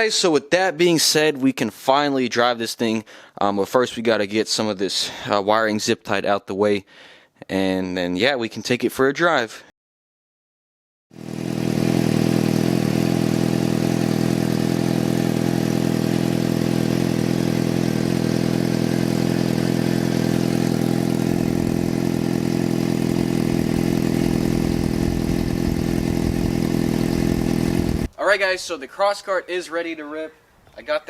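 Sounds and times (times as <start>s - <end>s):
motorcycle engine idling: 11.2s - 28.1s.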